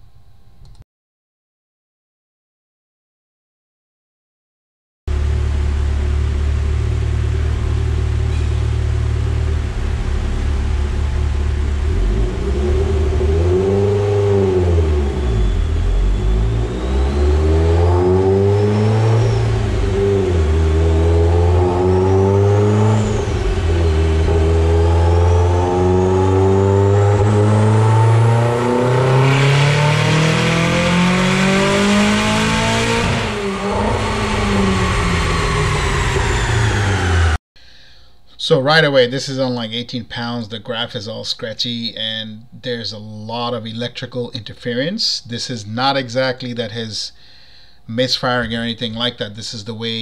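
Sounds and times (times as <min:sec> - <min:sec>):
car engine revving: 0:05.1 - 0:37.4
turbo whistle: 0:14.3 - 0:20.2.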